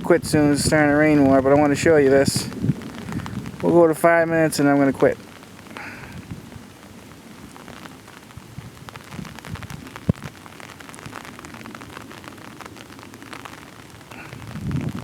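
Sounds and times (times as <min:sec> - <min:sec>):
low rumbling: 0:00.0 - 0:06.6, 0:14.1 - 0:15.0
raindrops ticking: 0:00.0 - 0:15.0.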